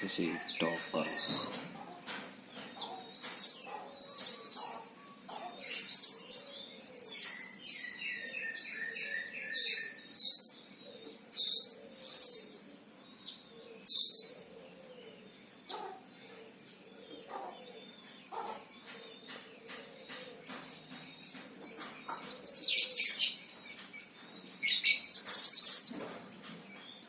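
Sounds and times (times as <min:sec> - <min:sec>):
bird singing high chirpy phrases: 0:00.0 - 0:01.6.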